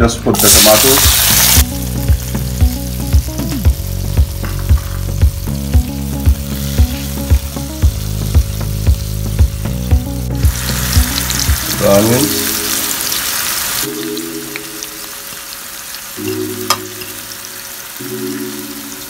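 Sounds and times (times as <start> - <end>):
tomatoes sizzling in oil: 0.1 - 19.0
background music with beat: 1.1 - 12.8, 16.2 - 17.4.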